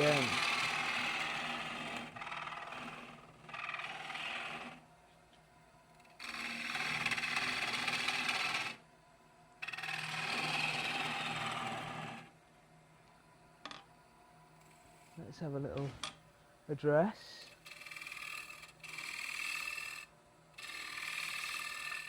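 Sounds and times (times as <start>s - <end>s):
lathe motor hum: 0.0s - 4.8s, 6.0s - 8.8s, 9.6s - 12.4s, 16.8s - 22.0s
turning tool scraping wood: 0.0s - 4.8s, 6.0s - 8.8s, 9.6s - 12.3s, 17.4s - 22.0s.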